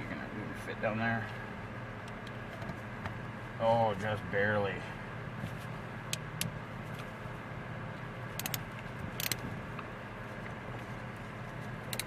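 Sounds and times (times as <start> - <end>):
steady low hum: 0.0 - 12.0
screwdriver clicking on metal parts: 8.4 - 8.6, 9.2 - 9.4.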